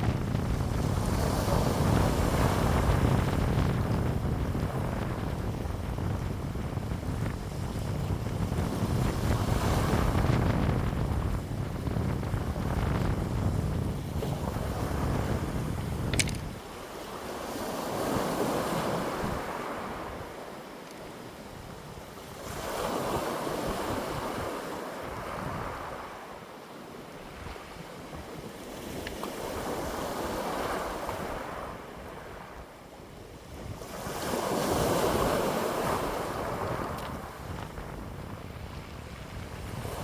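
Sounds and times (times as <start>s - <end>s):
wind gusting: 0.0s - 20.5s
wind rumble on microphone: 0.0s - 40.0s.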